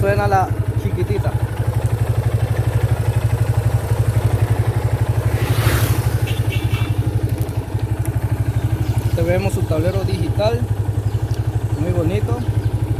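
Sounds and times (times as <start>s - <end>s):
motorcycle engine idling: 0.0s - 12.9s
rushing hiss: 5.1s - 7.2s.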